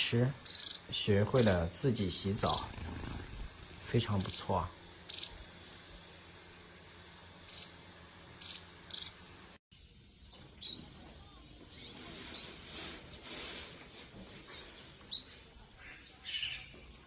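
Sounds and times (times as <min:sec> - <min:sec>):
fledglings chirping: 0:00.0 - 0:05.7, 0:07.5 - 0:07.8, 0:08.4 - 0:09.2
faint insect drone: 0:00.0 - 0:10.3.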